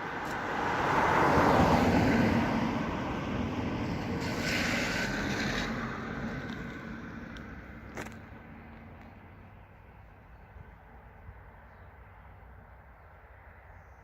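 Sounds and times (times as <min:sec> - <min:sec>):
train passing over bridge: 0:00.6 - 0:07.4.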